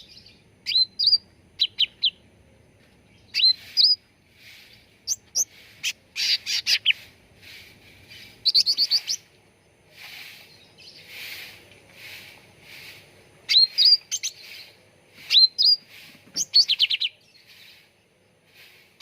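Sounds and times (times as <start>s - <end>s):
songbird whistling and chipping: 0.0s - 2.2s, 3.2s - 9.3s, 12.8s - 17.9s.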